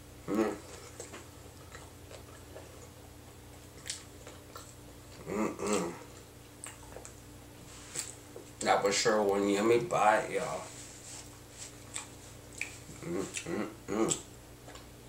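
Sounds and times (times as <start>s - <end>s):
steady low hum: 0.0s - 15.0s
person humming: 0.2s - 0.8s, 5.2s - 6.1s, 12.9s - 14.3s
person chewing food: 0.2s - 8.6s, 11.1s - 15.0s.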